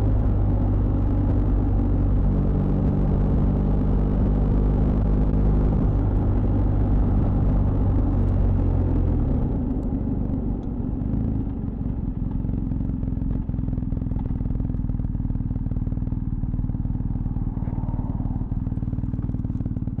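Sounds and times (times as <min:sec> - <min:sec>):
motorcycle engine idling: 0:07.7 - 0:20.0.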